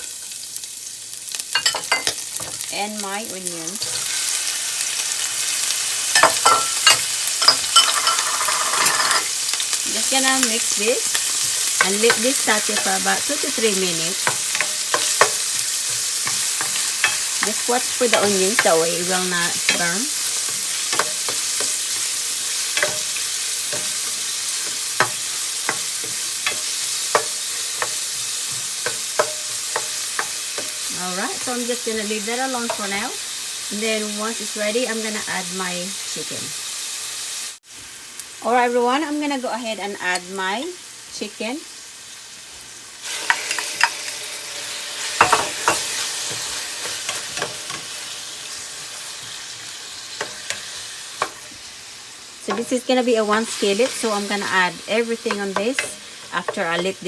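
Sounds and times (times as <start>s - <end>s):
onions sizzling in oil: 0.0s - 57.0s
utensil clinking and scraping pan: 6.2s - 9.3s, 10.3s - 31.6s, 45.1s - 48.1s, 55.2s - 57.0s
utensil scraping a pan: 6.2s - 9.3s.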